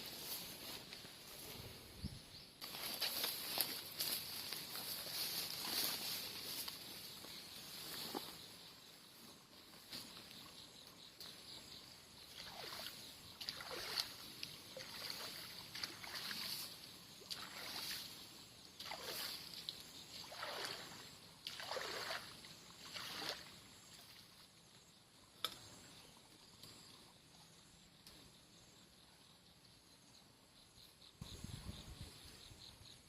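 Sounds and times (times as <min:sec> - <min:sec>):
footsteps sloshing through water: 0:12.3 - 0:18.2, 0:18.8 - 0:24.4.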